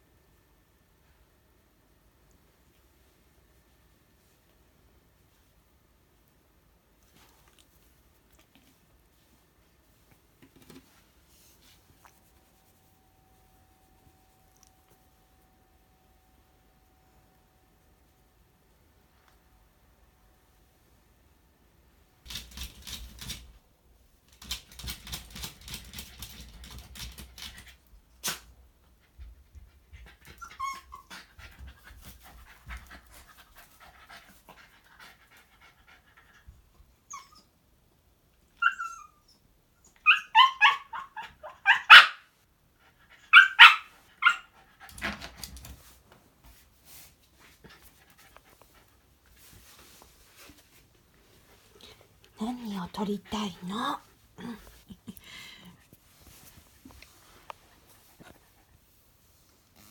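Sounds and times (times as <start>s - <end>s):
dog barking and yipping: 40.0s - 42.3s, 43.2s - 44.6s
rustling and scuffling: 44.9s - 52.4s, 55.8s - 59.9s.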